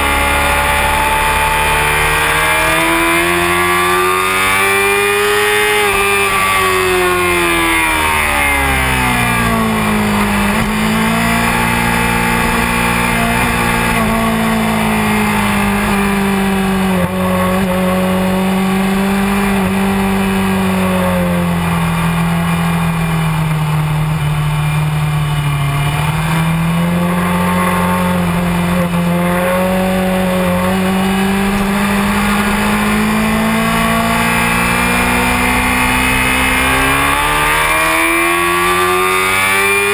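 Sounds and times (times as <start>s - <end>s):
motorcycle engine running hard: 0.0s - 39.9s.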